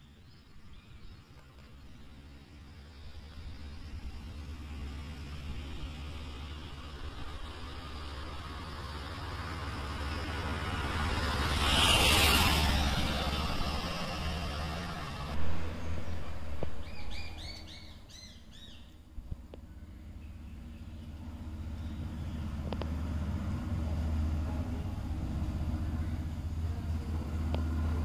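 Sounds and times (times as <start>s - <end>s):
bird chirping: 15.6s - 19.0s, 19.6s - 22.6s.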